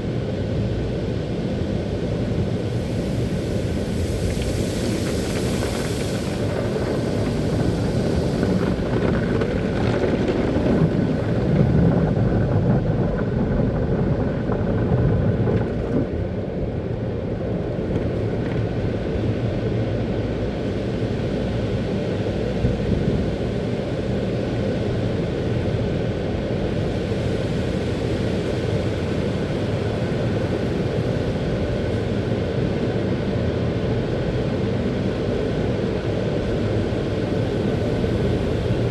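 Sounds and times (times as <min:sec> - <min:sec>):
faint steady whine: 0:00.0 - 0:38.9
car wash equipment rushing: 0:02.1 - 0:19.4.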